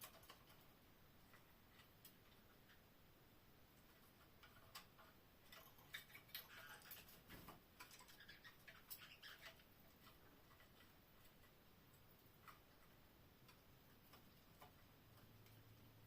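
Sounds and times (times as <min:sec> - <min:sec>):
canaries clicking in cage: 0:00.0 - 0:00.7, 0:04.1 - 0:12.8.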